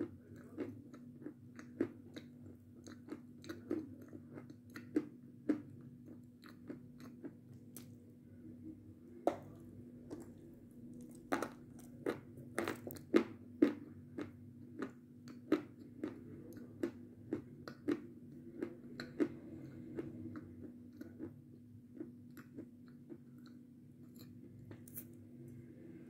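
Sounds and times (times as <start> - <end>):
steady low hum: 0.0 - 26.0
chocolate bar crunching: 9.3 - 19.4.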